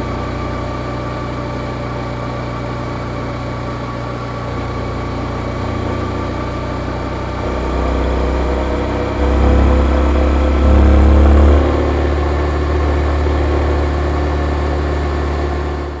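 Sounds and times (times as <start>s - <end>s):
motorcycle engine revving: 4.8s - 16.0s.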